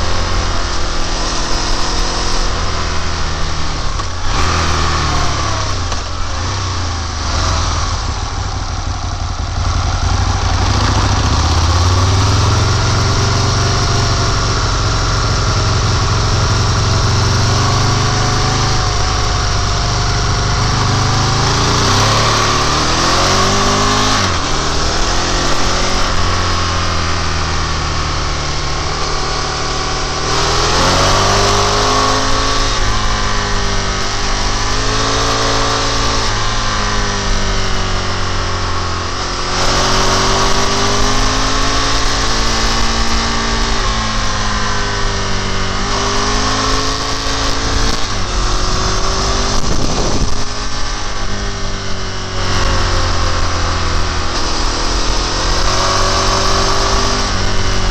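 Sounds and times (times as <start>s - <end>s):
motorcycle engine revving: 0.0s - 57.9s
wind rush: 47.5s - 57.9s.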